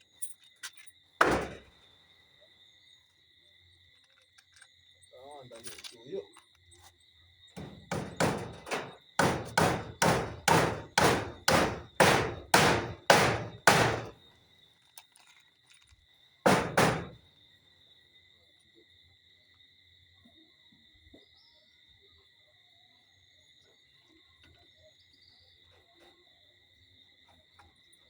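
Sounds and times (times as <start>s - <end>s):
crickets chirring: 0.0s - 28.0s
hammer driving a nail: 1.2s - 1.6s, 7.6s - 14.1s, 16.5s - 17.2s.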